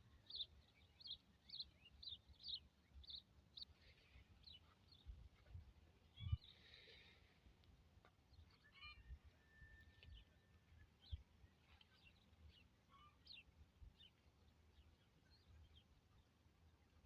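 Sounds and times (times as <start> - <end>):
faint bird chirps: 0.0 - 7.2, 8.3 - 14.2.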